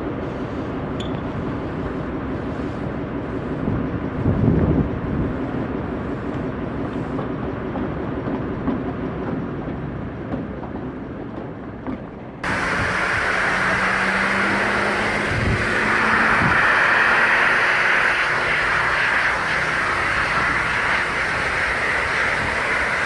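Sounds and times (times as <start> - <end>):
train rumbling on track: 0.0 - 23.0
clicks of train wheels: 1.0 - 1.4
hissing sound with low hum: 12.4 - 23.0.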